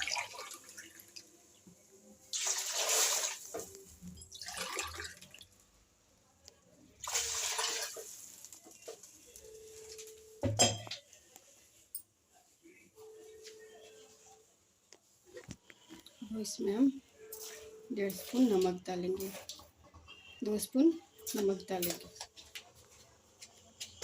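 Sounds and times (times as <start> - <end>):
water pouring into a pot: 0.0 - 1.3, 2.3 - 5.6, 7.0 - 8.8.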